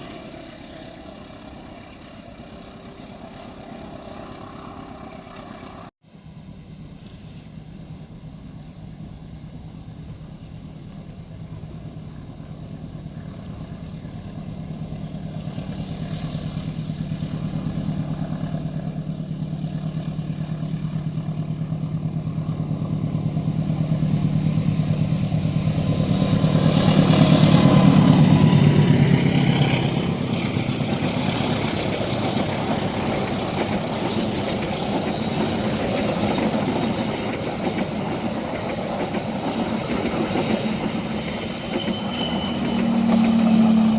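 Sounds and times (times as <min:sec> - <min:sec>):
diesel locomotive engine hum: 0:00.0 - 0:43.9
train rumble: 0:00.0 - 0:43.9.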